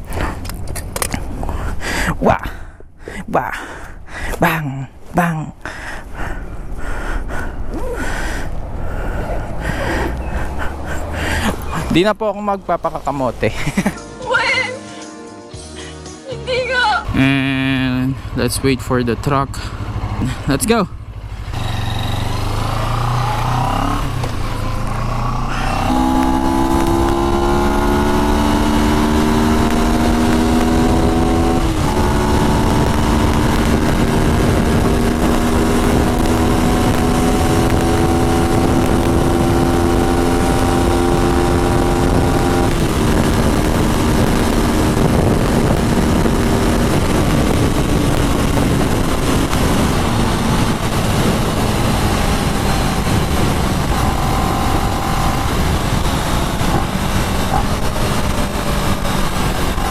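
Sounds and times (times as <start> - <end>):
wind and road rush: 0.0 - 14.8, 16.5 - 59.9
motorcycle engine pulling through gears: 21.2 - 59.9.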